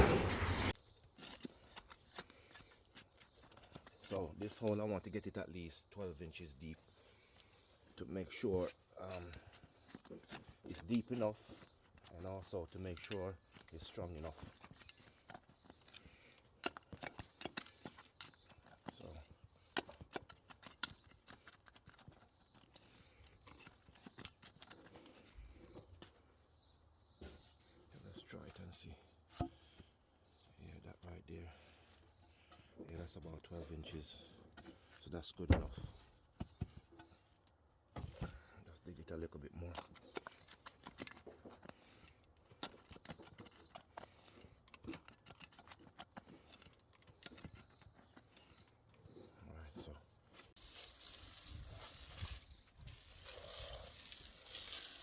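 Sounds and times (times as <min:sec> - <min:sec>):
tool digging in soil: 0:00.0 - 0:06.7, 0:07.9 - 0:26.3, 0:38.0 - 0:55.0.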